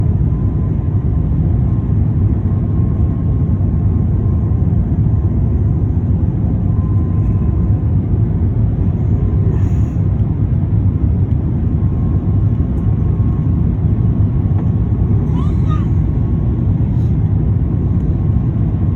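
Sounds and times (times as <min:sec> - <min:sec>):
airliner engines rumbling: 0:00.0 - 0:18.9.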